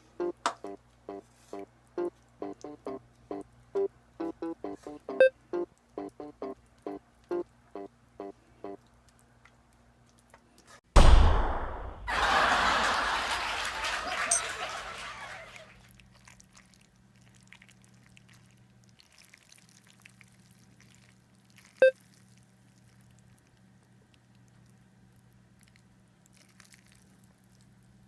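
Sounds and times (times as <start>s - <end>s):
faint low hum: 0.0s - 10.7s.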